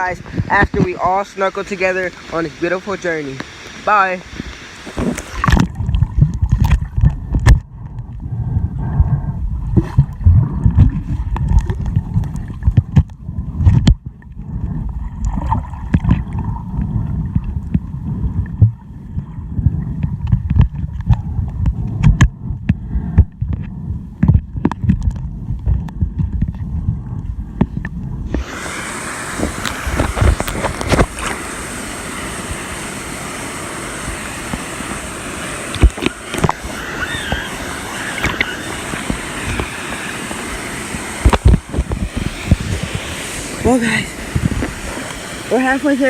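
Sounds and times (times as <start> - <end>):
underwater churning water: 0.0 - 46.0
clicks and knocks against camera: 4.9 - 8.2, 9.7 - 14.2, 17.3 - 28.4, 35.8 - 36.6, 41.2 - 43.0.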